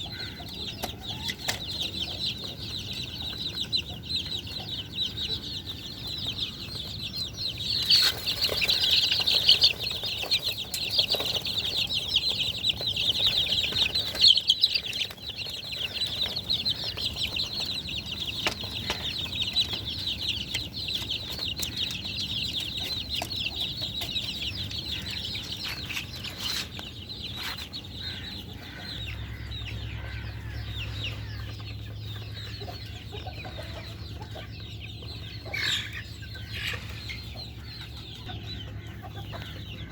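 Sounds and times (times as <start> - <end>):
chickens cheeping: 0.0 - 39.9.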